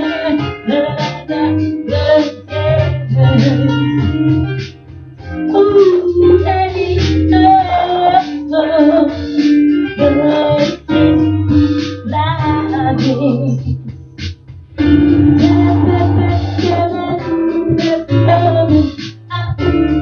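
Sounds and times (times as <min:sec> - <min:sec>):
keyboard: 0:00.0 - 0:20.0
steady bass line: 0:11.0 - 0:20.0
person singing: 0:14.8 - 0:20.0.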